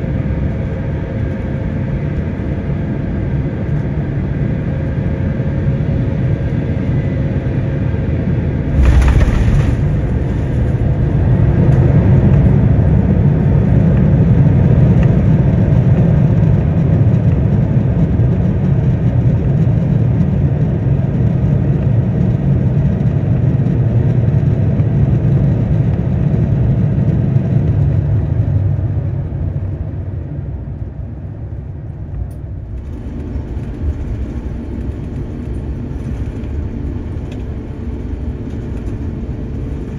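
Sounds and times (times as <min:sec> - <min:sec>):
jet engines reverse thrust rumble: 0:00.0 - 0:39.9
wheels touching down thud: 0:08.7 - 0:11.9.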